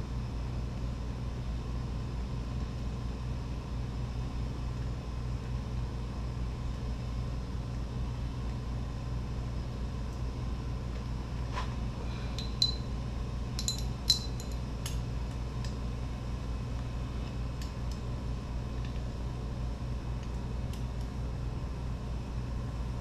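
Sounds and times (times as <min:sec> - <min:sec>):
steady low hum: 0:00.0 - 0:23.0
light metallic clinks: 0:12.3 - 0:15.0.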